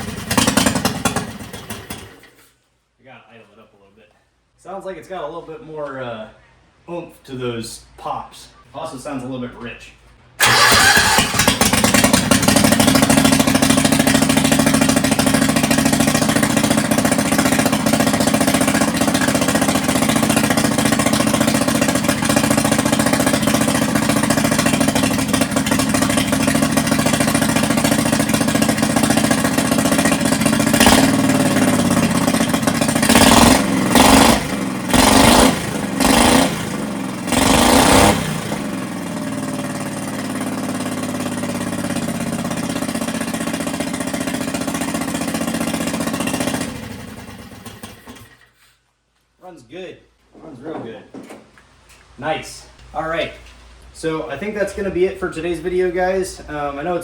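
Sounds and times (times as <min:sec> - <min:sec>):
engine at fast idle: 0:00.0 - 0:02.3, 0:10.4 - 0:48.5
engine revs blipped: 0:30.6 - 0:38.8.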